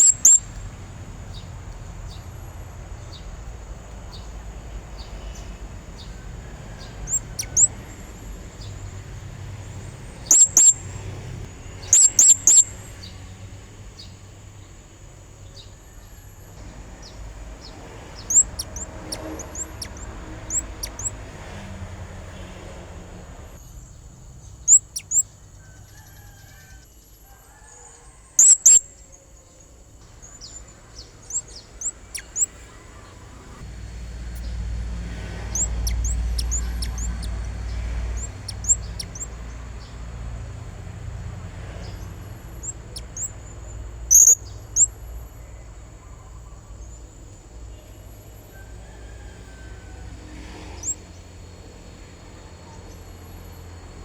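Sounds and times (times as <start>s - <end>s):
parrot chirping: 0.0s - 1.4s, 5.0s - 8.9s, 9.6s - 11.0s, 11.8s - 13.0s, 16.7s - 22.4s, 24.6s - 25.3s, 28.4s - 28.9s, 30.3s - 33.6s, 34.2s - 39.7s, 41.9s - 43.4s, 44.1s - 45.0s.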